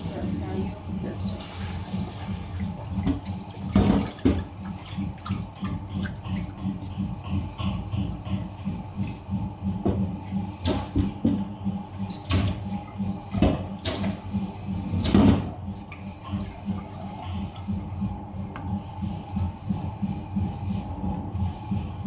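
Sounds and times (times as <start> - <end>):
water running into sink: 0.0 - 5.4.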